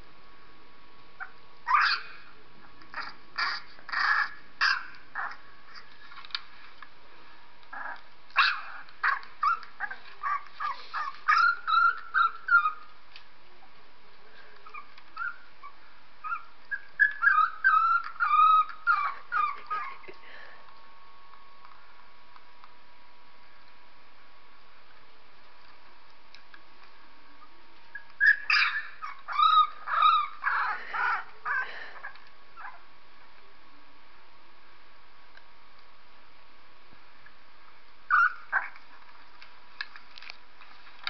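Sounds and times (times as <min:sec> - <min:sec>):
puppy crying: 0:01.2 - 0:02.3, 0:02.9 - 0:05.8, 0:07.7 - 0:12.9, 0:14.6 - 0:20.2, 0:27.9 - 0:32.8, 0:38.1 - 0:38.8.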